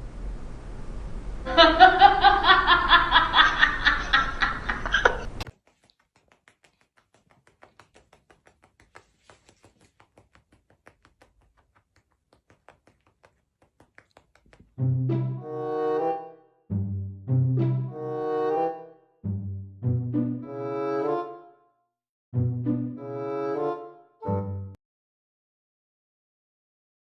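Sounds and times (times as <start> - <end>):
person laughing hard: 1.5 - 5.4.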